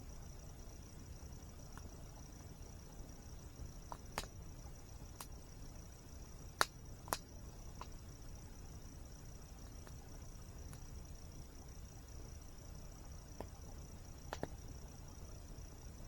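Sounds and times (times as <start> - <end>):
insect trill: 0.0 - 16.0
campfire crackling and popping: 1.6 - 8.6, 9.4 - 11.5, 13.2 - 14.9.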